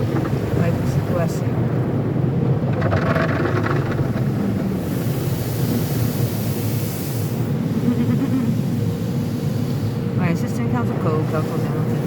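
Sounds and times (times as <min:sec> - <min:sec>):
car wash machinery rumble: 0:00.0 - 0:12.0
water spray hiss on car: 0:04.2 - 0:12.0.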